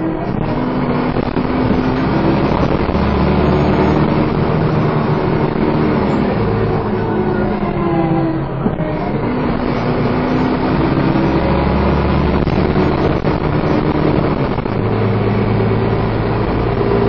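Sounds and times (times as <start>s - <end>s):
bus engine under heavy throttle: 0.0s - 17.0s.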